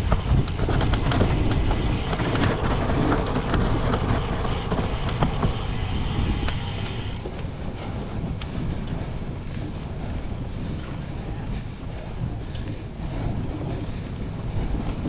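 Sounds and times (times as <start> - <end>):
bike rattling and knocking: 0.0 - 9.6
wind rushing over microphone: 0.0 - 15.0.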